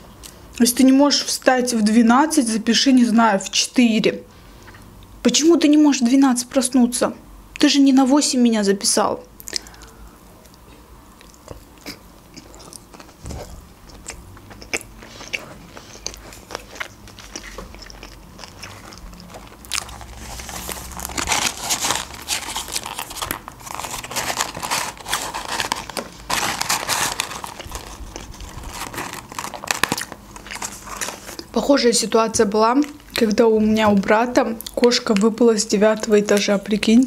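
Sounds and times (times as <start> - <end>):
close-miked chewing: 9.4 - 31.6
paper carton rustling: 19.3 - 31.4.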